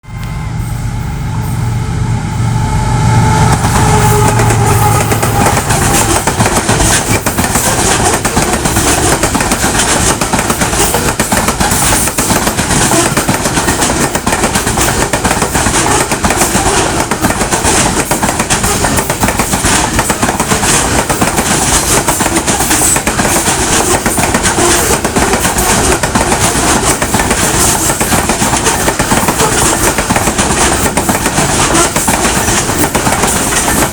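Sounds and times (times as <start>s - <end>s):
locomotive engine hum: 0.0s - 11.1s
wagon wheels clattering on rails: 4.9s - 33.9s.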